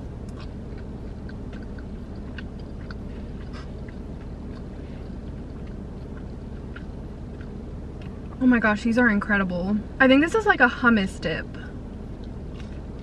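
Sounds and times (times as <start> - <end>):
steady low hum: 0.0 - 13.0
crunchy chewing: 0.1 - 8.4, 12.0 - 13.0
wet mouth clicks: 0.3 - 8.2.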